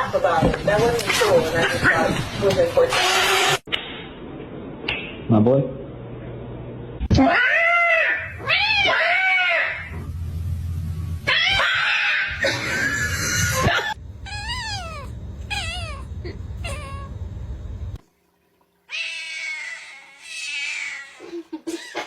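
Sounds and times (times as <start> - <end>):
cat meowing and yowling: 7.3 - 9.9, 14.2 - 17.1, 18.9 - 21.2.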